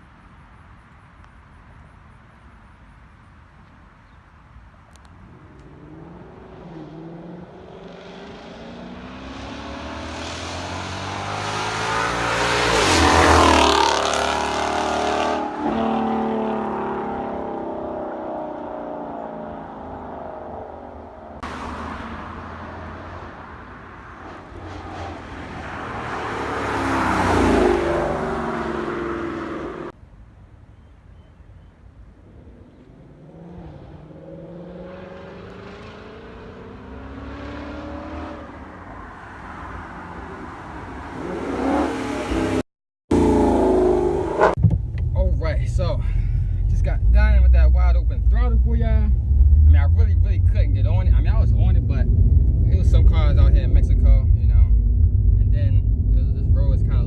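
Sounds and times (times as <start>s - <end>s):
car engine driving past: 5.3s - 30.0s.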